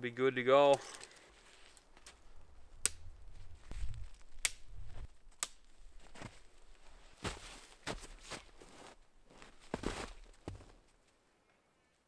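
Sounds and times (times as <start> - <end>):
tent pole clicks: 0.7 - 8.6.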